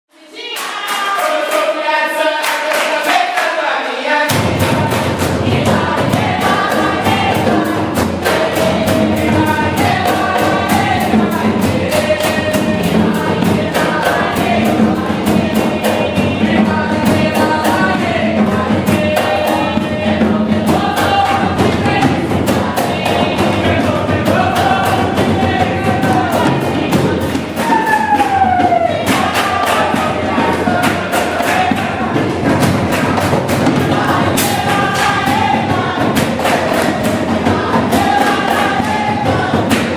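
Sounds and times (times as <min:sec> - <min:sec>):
group of voices singing: 0:00.1 - 0:39.9
hand drums and drum kit: 0:04.3 - 0:39.9.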